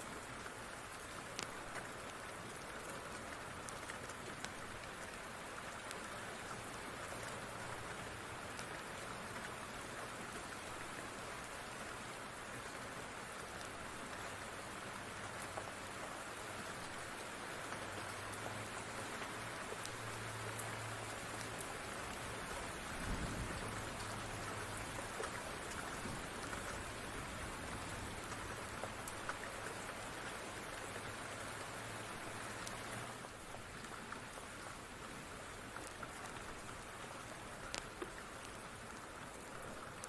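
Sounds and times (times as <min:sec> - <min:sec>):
rain falling: 0:00.0 - 0:40.0
wood fire crackling: 0:01.3 - 0:02.2, 0:35.7 - 0:40.0.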